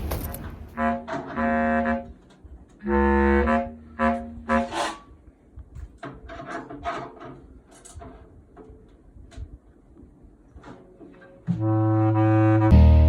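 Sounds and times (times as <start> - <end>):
instrument playing low notes: 11.6 - 13.0.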